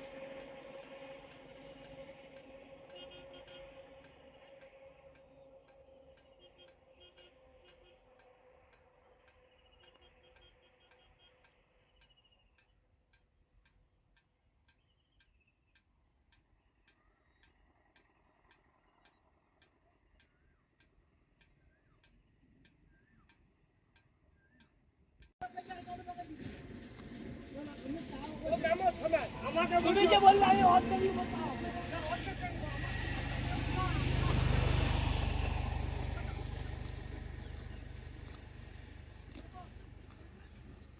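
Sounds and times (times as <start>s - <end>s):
faint ticking: 0.0s - 25.3s.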